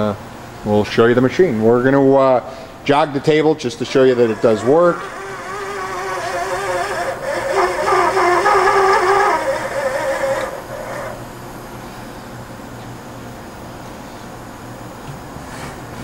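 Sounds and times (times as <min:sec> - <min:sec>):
steady machine hum: 0:00.0 - 0:16.0
machine axis drive whining: 0:01.4 - 0:12.0.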